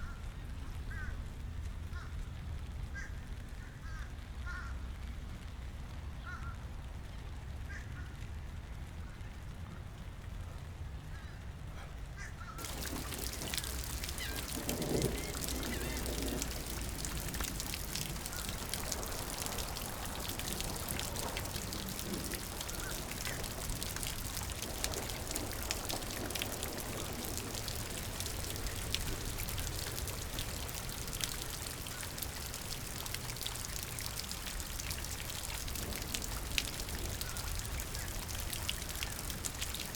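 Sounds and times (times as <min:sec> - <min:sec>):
rain pattering: 0:00.0 - 0:11.7, 0:12.4 - 0:39.9.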